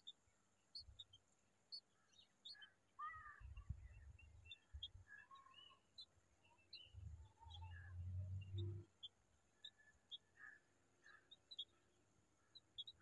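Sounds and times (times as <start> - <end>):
lower curved bird calls: 0.8 - 13.0
high bird peeps: 12.5 - 13.0.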